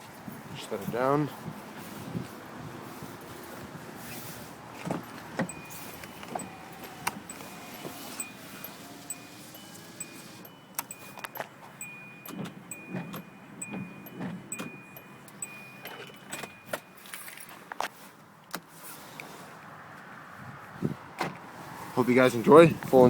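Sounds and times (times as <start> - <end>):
things handled inside a car: 0.0 - 19.7
high electronic chime: 5.5 - 17.0.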